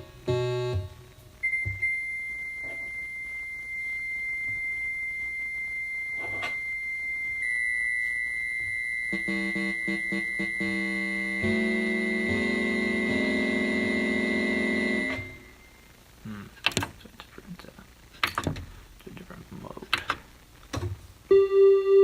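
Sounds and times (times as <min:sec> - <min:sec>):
high keyboard tone: 0:00.3 - 0:15.7, 0:21.3 - 0:22.0.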